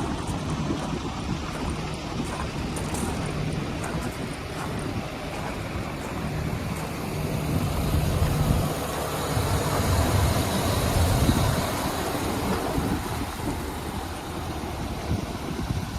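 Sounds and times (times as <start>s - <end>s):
truck engine idling: 0.0s - 15.9s.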